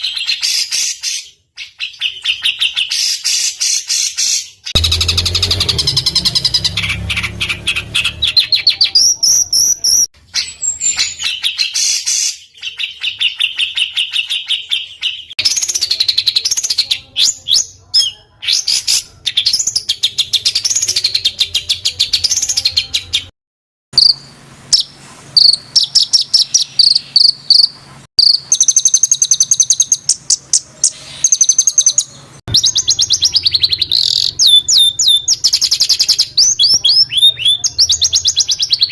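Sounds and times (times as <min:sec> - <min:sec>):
songbird trilling: 0:31.3 - 0:38.9.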